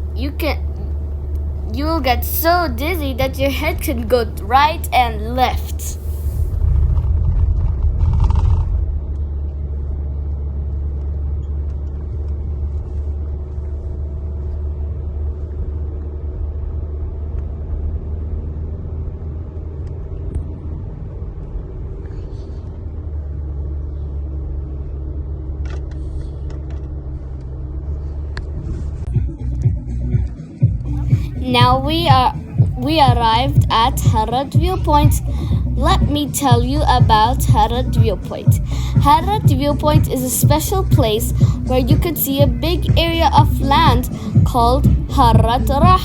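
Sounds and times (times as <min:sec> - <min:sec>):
car engine and road rumble: 0:00.0 - 0:46.0.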